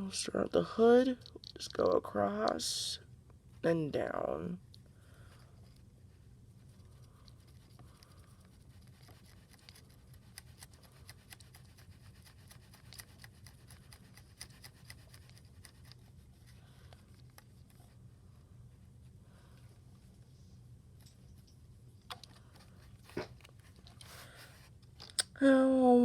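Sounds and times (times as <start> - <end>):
steady low hum: 0.0 - 26.0
marker scratching on toy car: 7.3 - 16.5.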